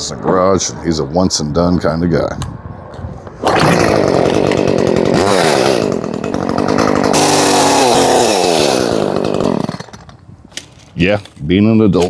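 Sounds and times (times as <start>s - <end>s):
chainsaw cutting limbs: 3.0s - 12.0s.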